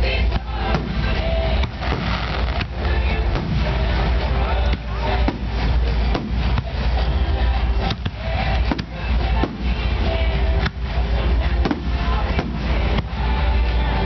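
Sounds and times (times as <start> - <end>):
music playing: 0.0 - 14.0
firework shells bursting: 1.7 - 3.9.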